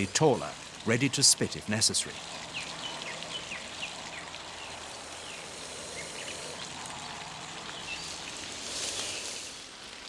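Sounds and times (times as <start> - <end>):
steady outdoor noise: 0.0 - 10.0
snake hissing: 4.6 - 9.8.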